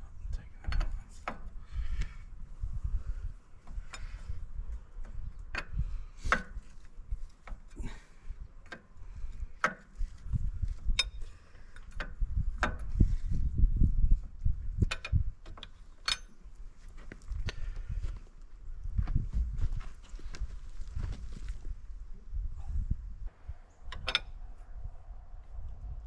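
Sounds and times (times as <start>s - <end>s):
low handling rumble: 18.6s - 26.0s.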